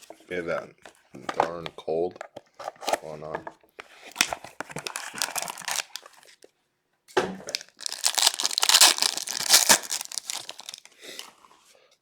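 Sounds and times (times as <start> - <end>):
plastic wrapping crinkling and tearing: 4.1 - 6.5, 7.4 - 11.3.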